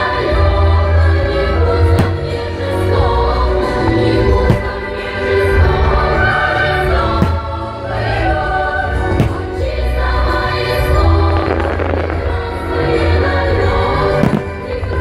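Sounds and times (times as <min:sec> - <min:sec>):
choral music with deep bass: 0:00.0 - 0:15.0
sharp firework bangs: 0:02.0 - 0:02.4, 0:04.4 - 0:05.1, 0:07.2 - 0:07.6, 0:09.2 - 0:09.7, 0:14.2 - 0:14.7.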